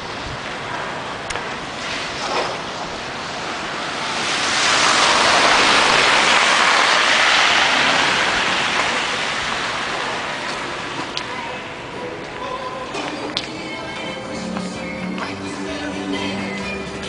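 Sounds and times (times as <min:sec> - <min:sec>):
vehicle tyre and road noise: 0:00.0 - 0:17.0.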